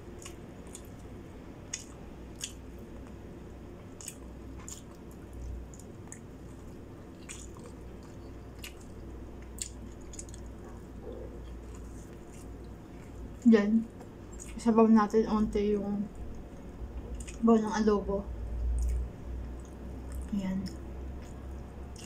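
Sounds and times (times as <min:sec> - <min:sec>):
low steady hum: 0:00.0 - 0:22.0
wet chewing and lip smacks: 0:00.1 - 0:01.1, 0:01.7 - 0:03.2, 0:03.8 - 0:13.4, 0:14.0 - 0:14.6, 0:16.2 - 0:17.4, 0:18.7 - 0:22.0.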